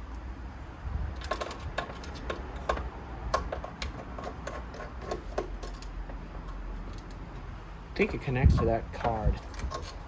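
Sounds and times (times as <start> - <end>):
small clicks and taps of parts: 1.2 - 7.2.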